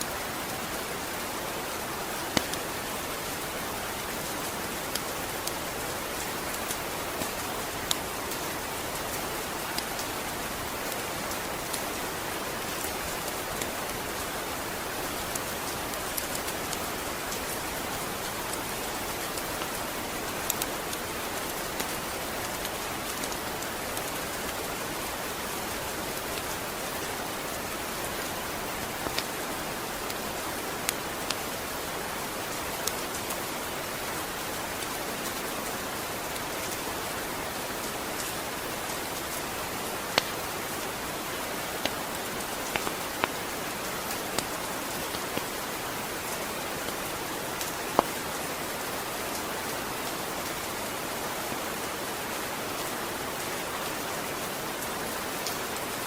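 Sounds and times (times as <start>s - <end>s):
rain falling: 0.0s - 56.0s
raindrop ticks on surface: 2.3s - 2.7s, 28.8s - 29.4s, 32.6s - 33.4s, 38.1s - 45.6s, 46.2s - 48.4s.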